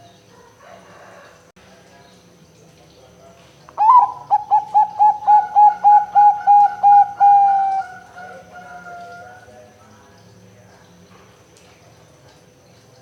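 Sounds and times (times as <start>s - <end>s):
dove cooing: 3.8s - 9.5s.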